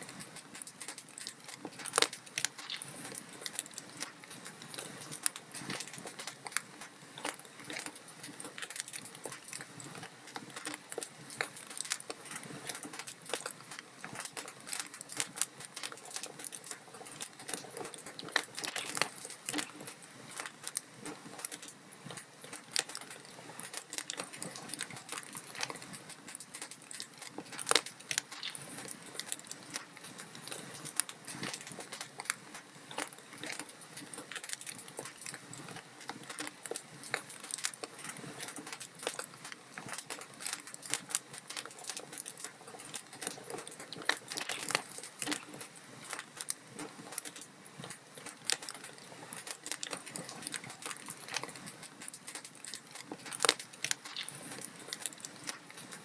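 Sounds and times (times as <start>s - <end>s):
log fire crackling: 0.0s - 56.0s.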